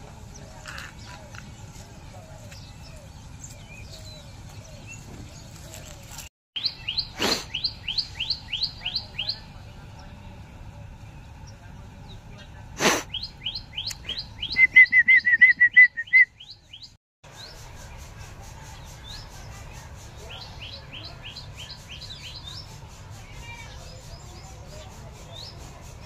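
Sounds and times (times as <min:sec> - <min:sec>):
small bird chirping: 0:02.4 - 0:10.2
loud rapid bird trill: 0:06.6 - 0:09.6, 0:13.1 - 0:26.0.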